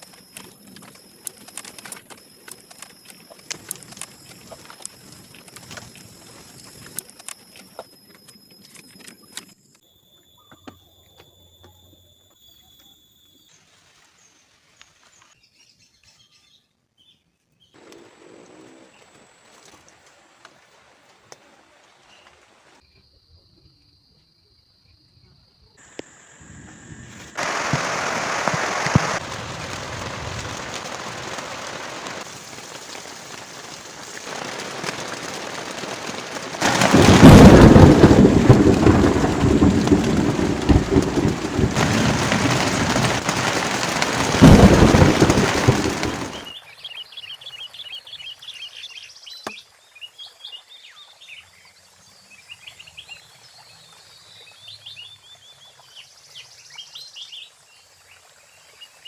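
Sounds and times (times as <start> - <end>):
thunder rumbling: 25.9 - 32.4, 34.9 - 46.5
heavy rain pouring: 25.9 - 46.5.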